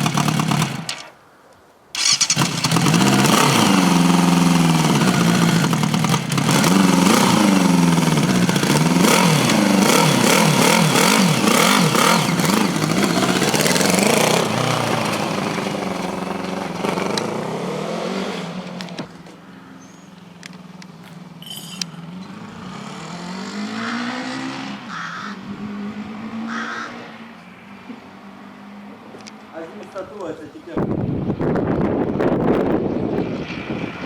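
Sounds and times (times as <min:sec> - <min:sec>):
motorcycle engine revving: 0:00.0 - 0:01.1, 0:02.0 - 0:19.2, 0:19.8 - 0:27.3.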